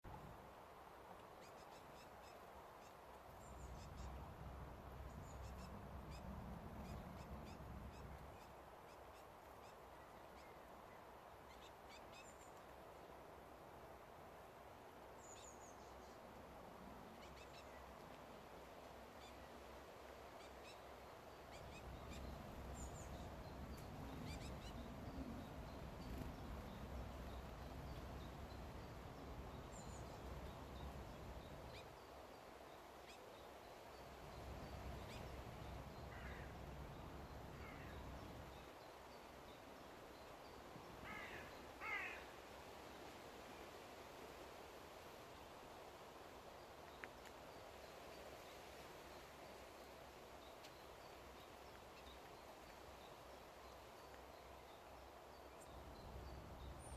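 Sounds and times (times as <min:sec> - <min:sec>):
steady background hiss: 0:00.1 - 0:56.9
small birds chirping: 0:01.2 - 0:12.8, 0:17.0 - 0:18.3, 0:20.4 - 0:42.2.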